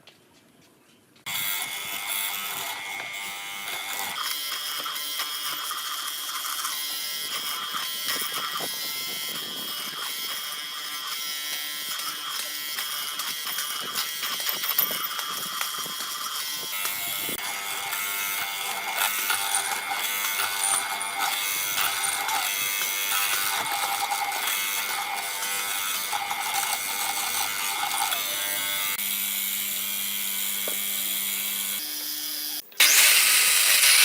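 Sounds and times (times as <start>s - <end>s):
power tool motor buzz: 1.3s - 34.0s.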